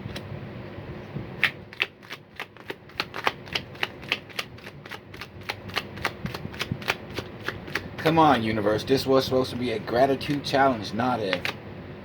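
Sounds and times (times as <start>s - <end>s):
cards being shuffled: 1.4s - 8.4s, 11.2s - 11.6s.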